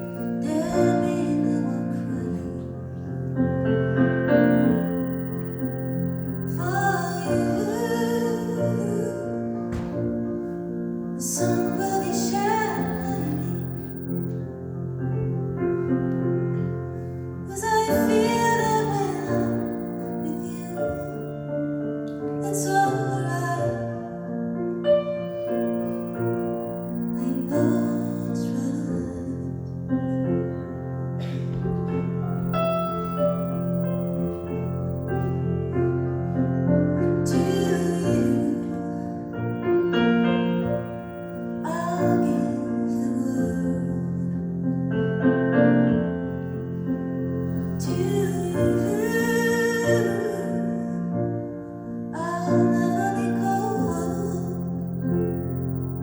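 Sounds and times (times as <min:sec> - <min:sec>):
piano ballad: 0:00.0 - 0:56.0
woman singing: 0:00.4 - 0:02.8, 0:17.5 - 0:20.7, 0:22.4 - 0:24.1, 0:37.3 - 0:39.2, 0:47.8 - 0:51.0.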